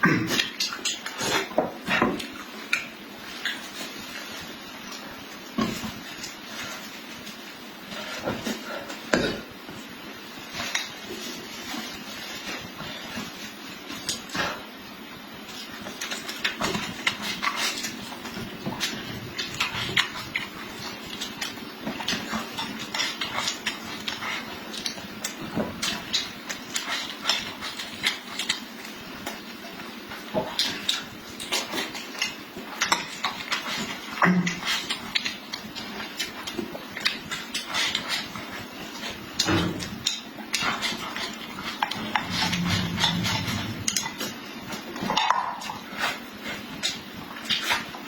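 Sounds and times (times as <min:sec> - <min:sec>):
person chewing food: 0:15.4 - 0:48.0.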